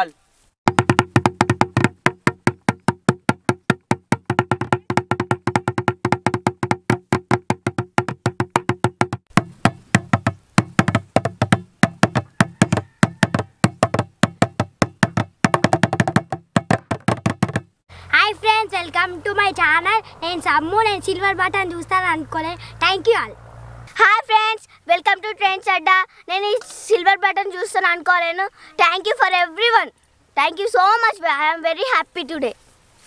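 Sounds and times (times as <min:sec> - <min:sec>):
fast stick drumming: 0:00.7 - 0:17.7.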